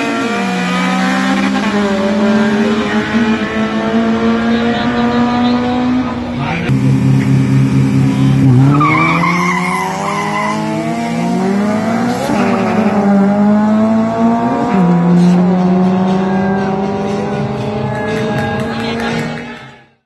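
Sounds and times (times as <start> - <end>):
car engine accelerating hard: 0.0 - 19.6
tyre squeal: 8.6 - 10.8.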